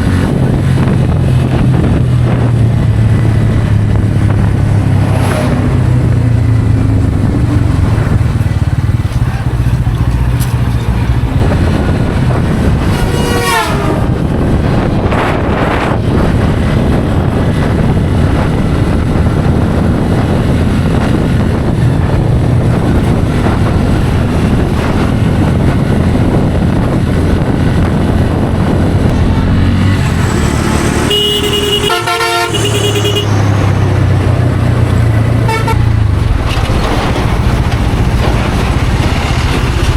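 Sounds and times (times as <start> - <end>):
motorcycle engine running: 0.0 - 39.9
wind and road noise: 0.0 - 39.9
vehicle horn short beeps: 31.1 - 33.4.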